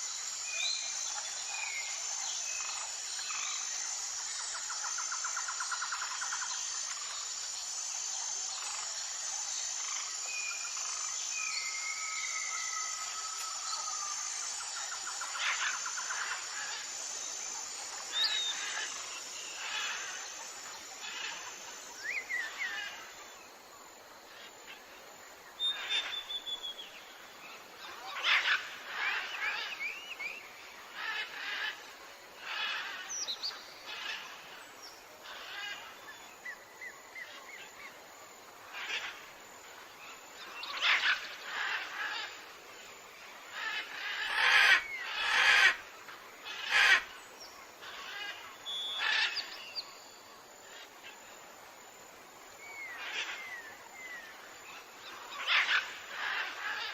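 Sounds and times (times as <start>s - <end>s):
forest birds chirping and singing: 0.0s - 56.9s.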